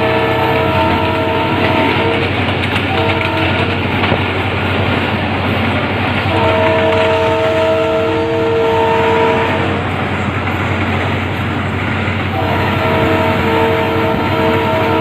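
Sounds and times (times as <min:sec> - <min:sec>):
locomotive horn chord: 0:00.0 - 0:03.8, 0:06.2 - 0:10.0, 0:12.3 - 0:15.0
train rumbling on rails: 0:00.0 - 0:15.0.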